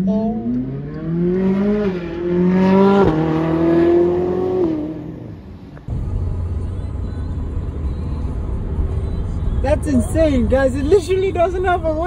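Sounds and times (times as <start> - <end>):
sports car accelerating past: 0.0 - 5.8
low engine rumble: 5.4 - 12.0.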